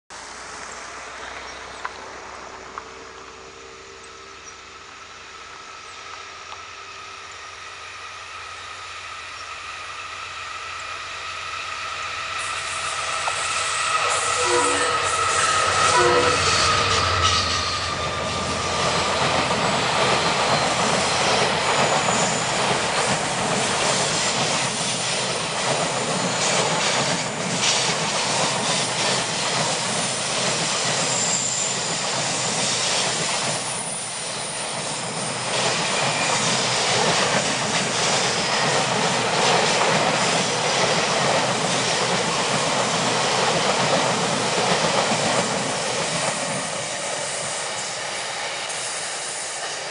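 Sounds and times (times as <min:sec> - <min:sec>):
train wheels rumbling on rails: 0:00.1 - 0:49.9
faint wheel squeal: 0:12.3 - 0:19.2, 0:30.8 - 0:36.8
train horn blast: 0:12.4 - 0:18.8.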